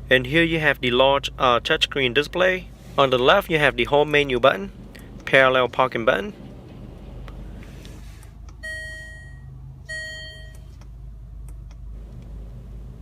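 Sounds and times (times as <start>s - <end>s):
low steady hum: 0.0s - 13.0s
car chime beeping: 8.6s - 10.8s.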